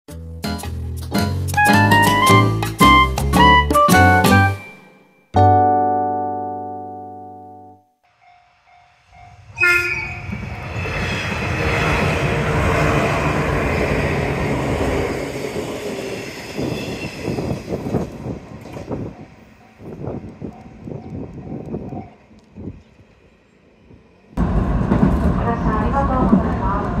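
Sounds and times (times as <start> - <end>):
train horn blast: 9.5 - 10.3.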